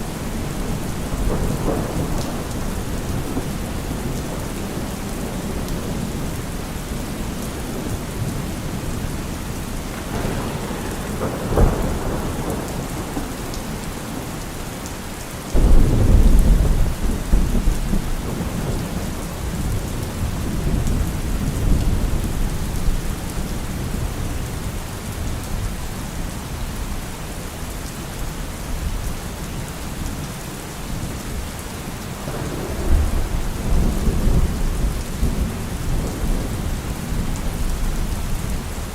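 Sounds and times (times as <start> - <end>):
thunder crack: 0.0 - 6.3, 7.8 - 14.8, 15.5 - 22.4, 32.2 - 37.7
thunder rumbling: 0.0 - 25.8, 31.0 - 38.9
steady rain falling: 0.0 - 38.9.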